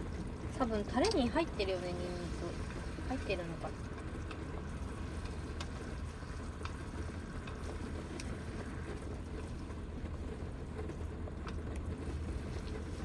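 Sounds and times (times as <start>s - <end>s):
heavy rain on van roof: 0.0s - 13.0s.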